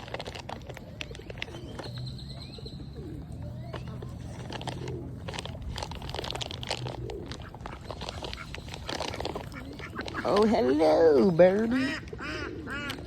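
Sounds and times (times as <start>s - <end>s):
pigeons cooing: 0.0s - 13.0s
high bird chirp: 1.2s - 4.4s.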